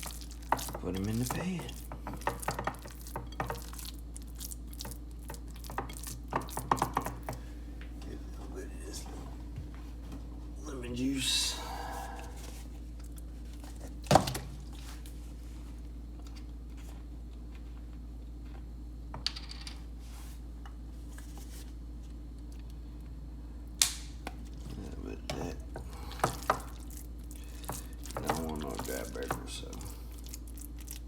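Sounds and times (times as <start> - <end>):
utensils clinking against bowl: 0.0 - 7.4, 25.3 - 30.4.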